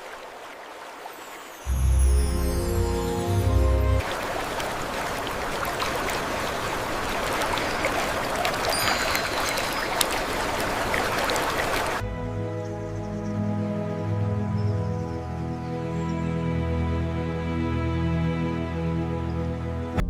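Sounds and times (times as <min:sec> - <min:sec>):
stream rushing: 0:00.0 - 0:12.4
music: 0:01.6 - 0:04.0, 0:12.0 - 0:20.0.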